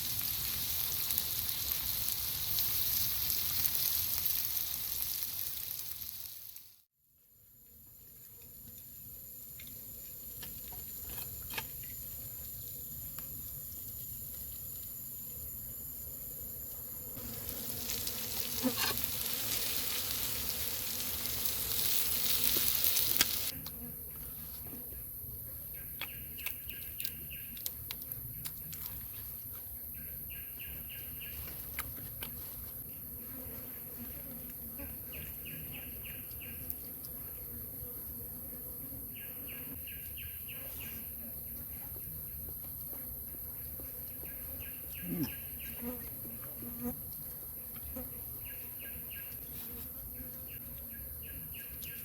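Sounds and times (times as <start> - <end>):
loud hiss: 17.3 - 23.5.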